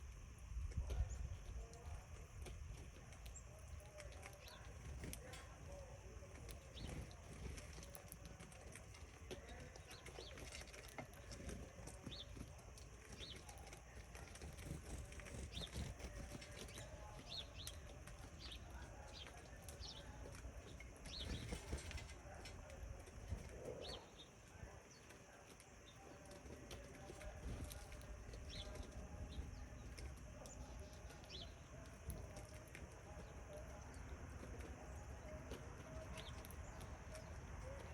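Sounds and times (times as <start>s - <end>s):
small birds chirping: 0.0s - 37.9s.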